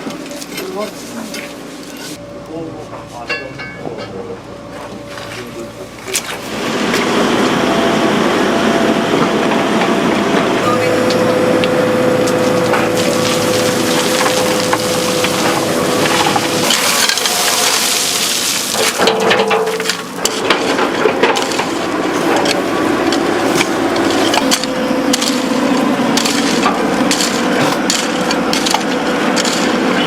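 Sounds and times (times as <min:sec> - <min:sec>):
excavator engine hum: 0:04.4 - 0:30.0
rubble cracking and clattering: 0:12.2 - 0:25.5, 0:26.2 - 0:29.8.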